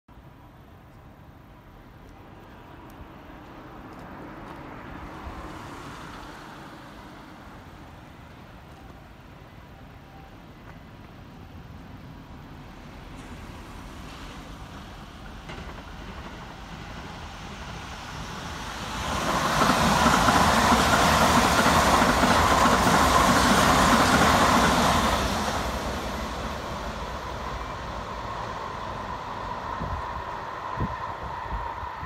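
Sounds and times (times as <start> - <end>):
electric train passing: 1.1 - 32.0
rail-joint clatter: 15.2 - 17.2.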